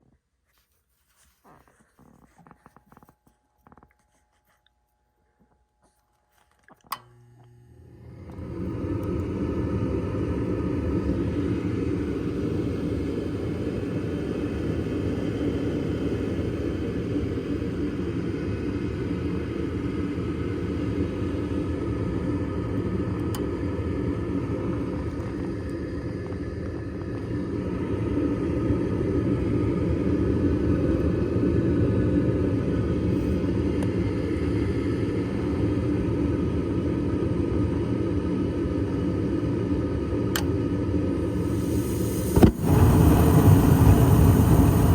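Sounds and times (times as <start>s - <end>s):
furnace motor buzzing hum: 6.6s - 14.0s, 33.0s - 44.9s.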